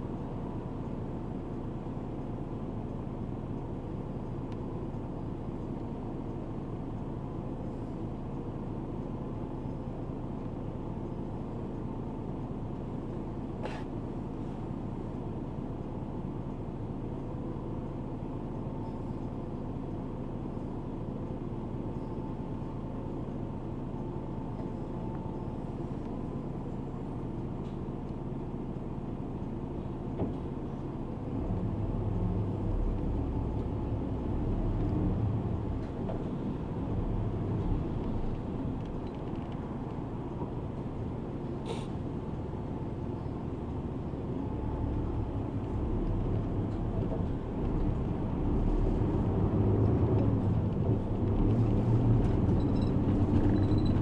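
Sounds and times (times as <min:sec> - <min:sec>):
bus engine hum: 0:00.0 - 0:54.0
road noise: 0:00.0 - 0:54.0
brief high hiss: 0:41.6 - 0:42.0.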